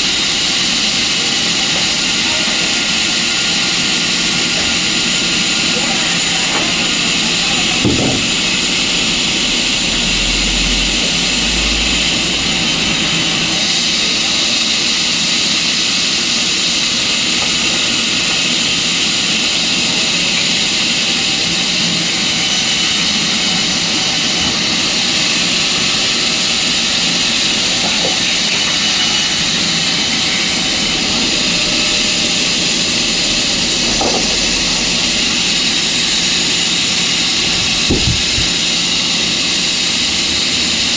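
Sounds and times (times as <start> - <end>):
sawmill machinery running: 0.0 - 40.9.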